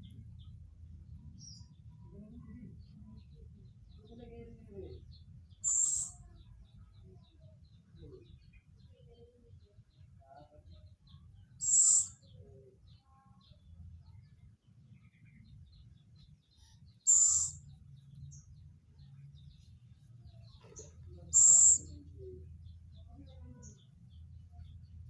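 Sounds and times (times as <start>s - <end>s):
owl high-pitched calls: 5.6s - 6.2s, 11.6s - 12.2s, 17.0s - 17.6s, 21.3s - 22.0s.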